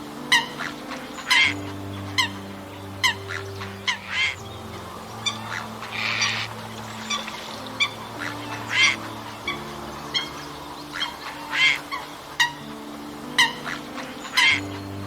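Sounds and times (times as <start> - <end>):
birds calling: 0.0 - 15.0
low droning tones: 0.0 - 15.0.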